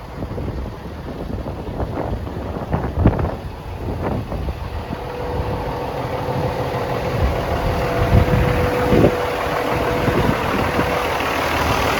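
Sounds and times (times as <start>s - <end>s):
diesel truck engine idling: 0.0s - 11.9s
thin steady whine: 2.8s - 11.9s.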